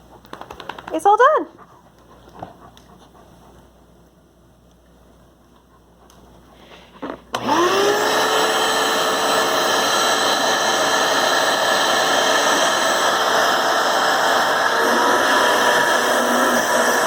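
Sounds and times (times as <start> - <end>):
vacuum cleaner motor whining: 7.0 - 17.0.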